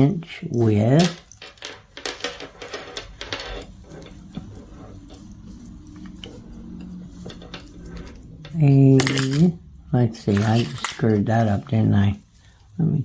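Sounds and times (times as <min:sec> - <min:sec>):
metal necklace clicks and rattles: 0:00.5 - 0:05.2, 0:07.1 - 0:09.5, 0:10.3 - 0:11.2.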